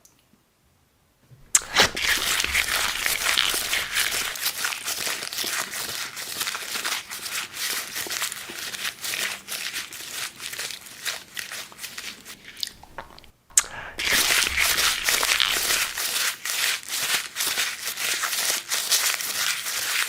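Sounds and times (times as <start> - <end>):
dense crisp crackle: 1.4 - 5.2, 9.6 - 16.1
close-miked crinkling and crunching: 1.4 - 20.0.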